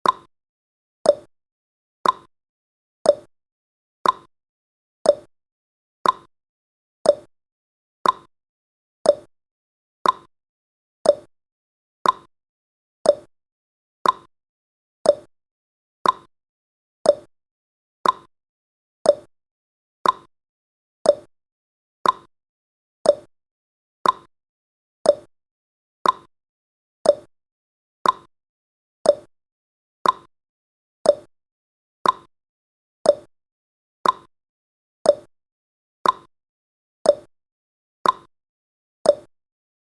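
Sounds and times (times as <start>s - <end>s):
clock ticking: 2.0s - 2.3s, 4.0s - 4.3s, 6.0s - 6.3s, 8.0s - 8.3s, 10.0s - 10.3s, 12.0s - 12.3s, 14.0s - 14.3s, 15.1s - 15.3s, 16.0s - 16.3s, 18.0s - 18.3s, 20.0s - 20.3s, 22.0s - 22.3s, 24.0s - 24.3s, 25.1s - 25.3s, 26.0s - 26.3s, 27.1s - 27.3s, 28.0s - 28.3s, 29.1s - 29.3s, 30.0s - 30.3s, 32.0s - 32.3s, 33.1s - 33.3s, 34.0s - 34.3s, 36.0s - 36.3s, 38.0s - 38.3s, 39.1s - 39.3s.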